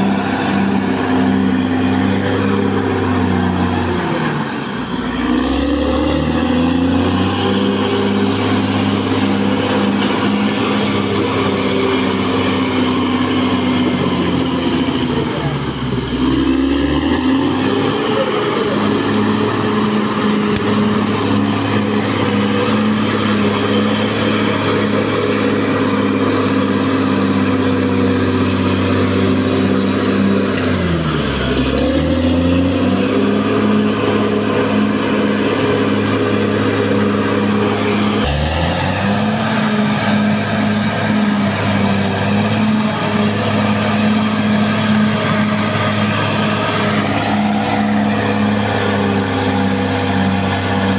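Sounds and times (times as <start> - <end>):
bulldozer diesel engine running: 0.0 - 50.9.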